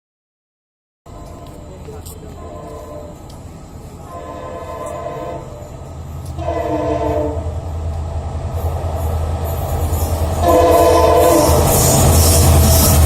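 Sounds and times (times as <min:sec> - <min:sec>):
train rumbling: 0:01.1 - 0:13.0
locomotive horn blasts: 0:02.3 - 0:03.2, 0:04.0 - 0:05.7, 0:06.4 - 0:07.6, 0:10.4 - 0:11.8.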